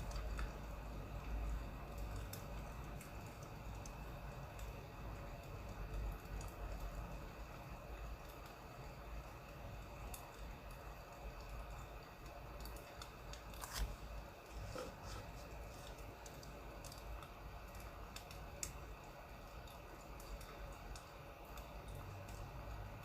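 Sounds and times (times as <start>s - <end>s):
firewood crackling and popping: 0.0s - 23.0s.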